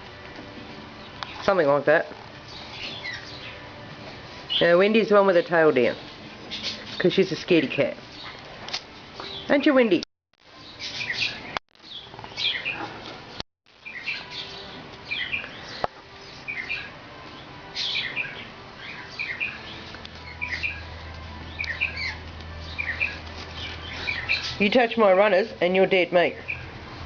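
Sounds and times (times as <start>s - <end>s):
small birds chirping: 2.4s - 3.7s, 10.6s - 26.7s.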